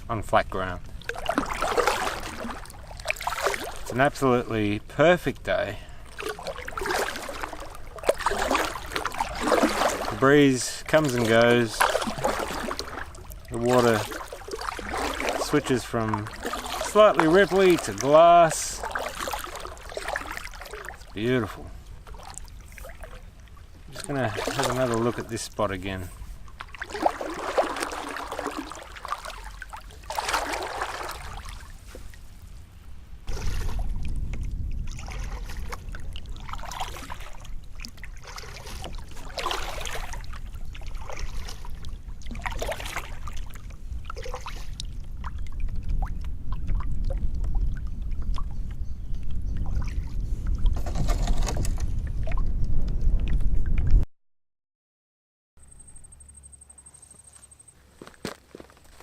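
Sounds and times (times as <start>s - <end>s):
water trickling off paddle: 0.0s - 32.5s, 33.3s - 53.8s
paddle strokes splashing: 0.0s - 32.6s, 33.3s - 47.7s, 49.6s - 52.4s
wind rumble on microphone: 31.0s - 54.0s.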